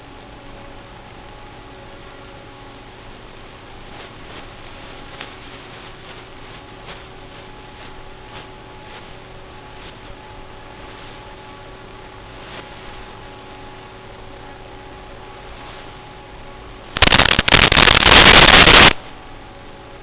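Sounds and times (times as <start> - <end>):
faint electrical hum: 0.0 - 20.0
static hiss: 16.9 - 19.2
crackling clicks: 17.0 - 19.0.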